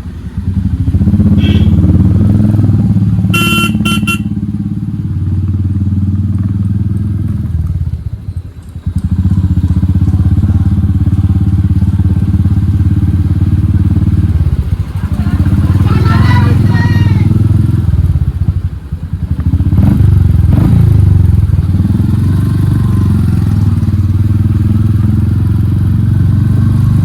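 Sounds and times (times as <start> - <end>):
motorcycle engine running loud: 0.0 - 27.0
horn beeps: 1.3 - 2.0, 3.3 - 4.4.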